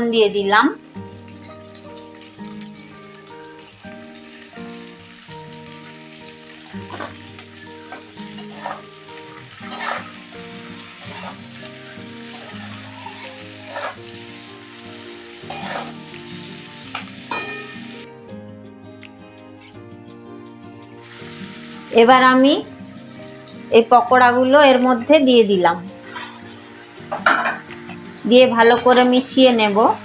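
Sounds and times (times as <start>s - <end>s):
vegetables sizzling in hot oil: 0.0s - 30.0s
utensil scraping a pan: 8.4s - 8.9s, 9.6s - 10.2s, 11.0s - 11.4s, 12.3s - 14.1s, 15.5s - 16.0s, 26.0s - 26.5s.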